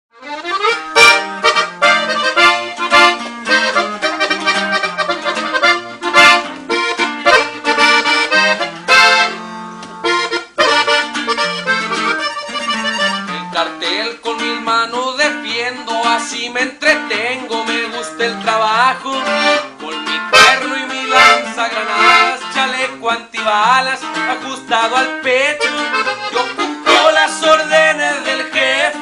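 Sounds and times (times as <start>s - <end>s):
accordion melody: 0.1s - 29.0s
stepping bass line: 0.4s - 13.8s, 24.8s - 29.0s.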